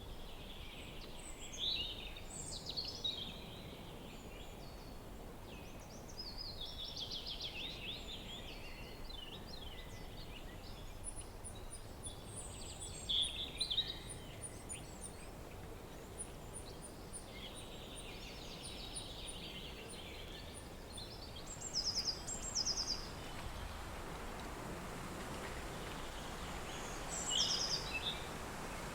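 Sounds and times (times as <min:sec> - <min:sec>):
wind hiss: 0:10.7 - 0:28.9.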